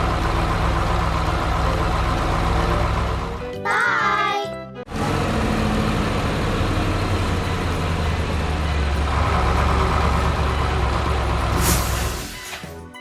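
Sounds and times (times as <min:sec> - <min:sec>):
heavy vehicle engine humming: 0:00.0 - 0:03.6, 0:04.9 - 0:12.5
short hiss: 0:11.6 - 0:12.6.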